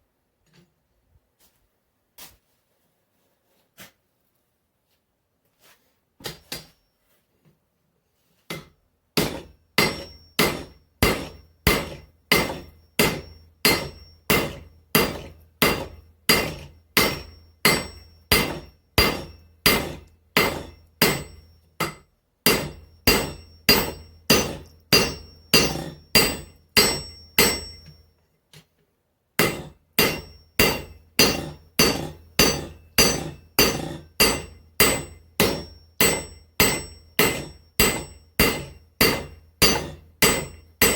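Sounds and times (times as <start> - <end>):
hammer ringing on hot steel: 9.2 - 28.1, 29.4 - 40.9.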